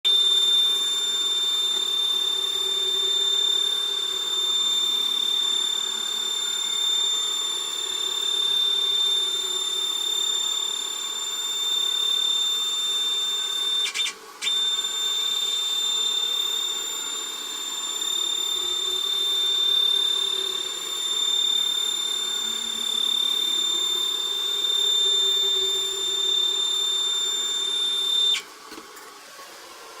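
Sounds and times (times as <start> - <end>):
machine high-pitched whine: 0.1 - 30.0
machine low wavering hum: 14.6 - 28.4.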